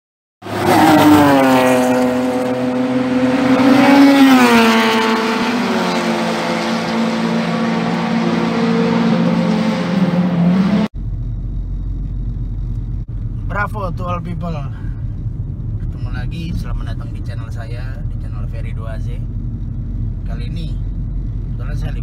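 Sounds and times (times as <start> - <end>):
race car engine revving: 0.4 - 21.6
low rumble inside a car: 11.0 - 22.0.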